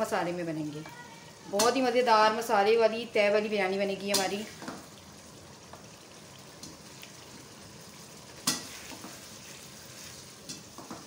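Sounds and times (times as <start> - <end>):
masala sizzling in a wok: 0.0 - 11.0
spatula stirring: 8.4 - 11.0.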